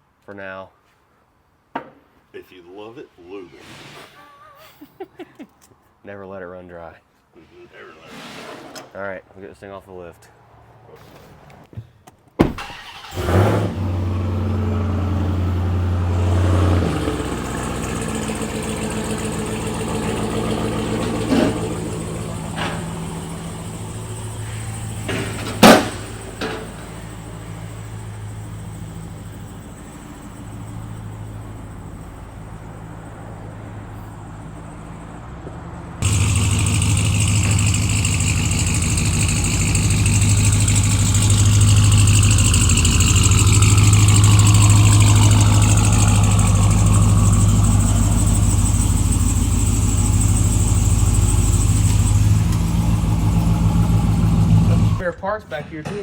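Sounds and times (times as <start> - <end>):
engine-like running: 12.6 - 55.0
sharp clack: 24.5 - 27.0
electric motor hum: 36.0 - 55.0.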